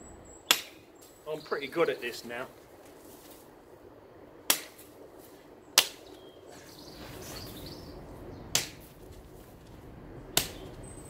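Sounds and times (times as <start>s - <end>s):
branches rustling: 0.4s - 10.9s
billhook chopping branches: 0.5s - 0.8s, 4.5s - 5.0s, 5.8s - 6.2s, 8.5s - 9.1s, 10.3s - 10.8s.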